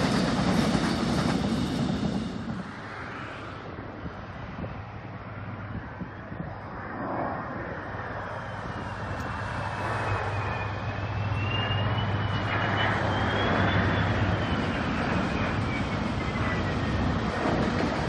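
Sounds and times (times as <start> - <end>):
diesel locomotive engine drone: 0.0 - 18.0
thin high whine: 8.1 - 16.8.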